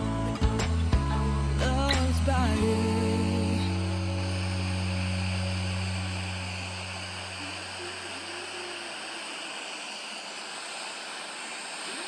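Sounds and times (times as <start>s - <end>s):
low sustained music notes: 0.0s - 9.2s
steady rushing hiss: 2.5s - 12.0s.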